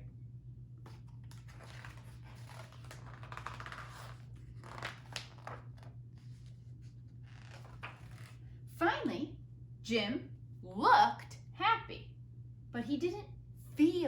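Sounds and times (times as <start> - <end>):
steady low hum: 0.0 - 14.0
rustling and handling noises: 0.8 - 8.5.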